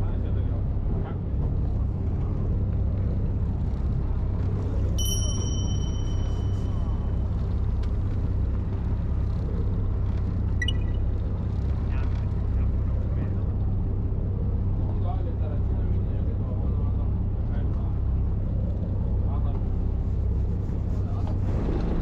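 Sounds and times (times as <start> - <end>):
boat engine rumbling: 0.0 - 22.0
thin high steady tone: 5.0 - 7.4, 10.6 - 11.1.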